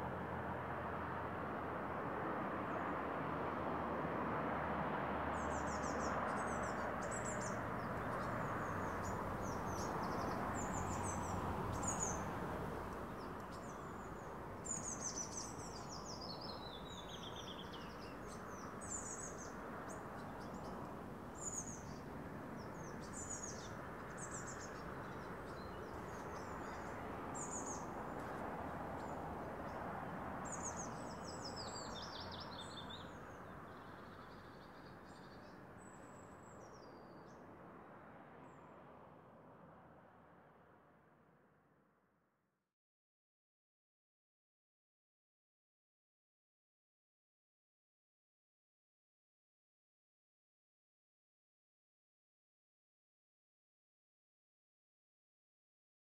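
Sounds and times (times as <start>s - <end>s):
distant road traffic hum: 0.0s - 41.6s
small birds chirping: 5.4s - 29.2s, 30.4s - 37.4s.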